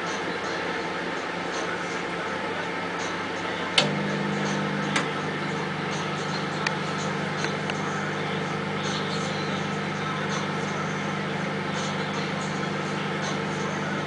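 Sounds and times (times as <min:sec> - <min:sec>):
microwave oven humming: 0:00.0 - 0:14.0
microwave oven click: 0:03.8 - 0:05.2.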